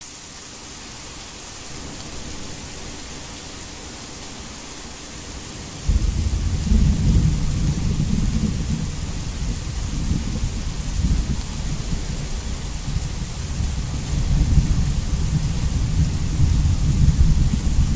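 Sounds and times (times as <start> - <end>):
heavy rain hissing: 0.0 - 17.9
thunder rumbling: 5.8 - 17.9.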